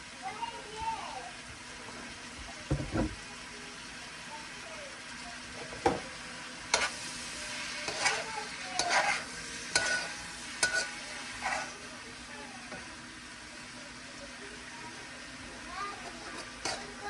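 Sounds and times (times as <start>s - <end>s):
food sizzling in a pan: 0.0s - 17.0s
utensil scraping a pan: 6.7s - 11.8s, 16.0s - 17.0s.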